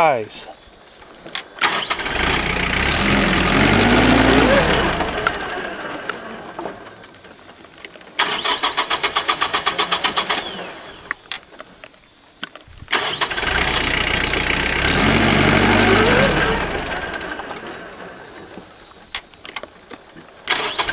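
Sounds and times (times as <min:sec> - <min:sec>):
engine cranking chugging: 0:01.6 - 0:07.0, 0:08.2 - 0:11.1, 0:12.9 - 0:18.6, 0:20.5 - 0:20.9
diesel tractor engine running: 0:01.6 - 0:07.2, 0:12.9 - 0:18.7, 0:20.5 - 0:20.9.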